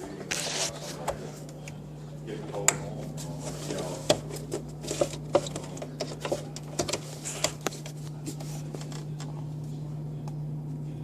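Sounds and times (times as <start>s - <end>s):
steady low hum: 0.0s - 11.0s
parts clicking and knocking: 4.1s - 7.6s.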